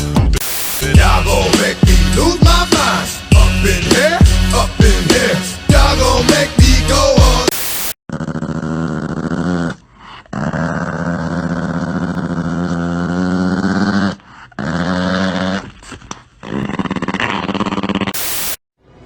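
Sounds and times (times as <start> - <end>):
dog growling: 8.1 - 18.2.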